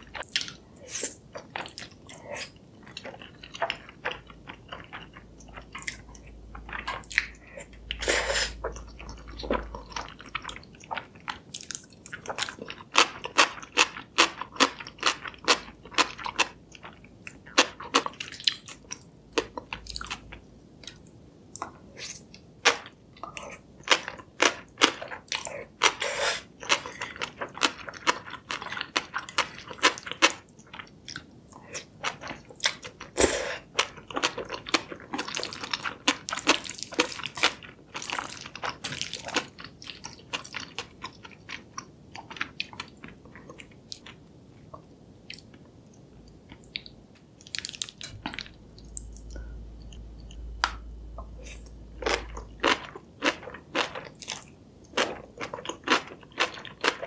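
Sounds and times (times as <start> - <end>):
chewing noodles: 0.0 - 21.0, 21.6 - 57.0
low rumble: 48.0 - 53.6.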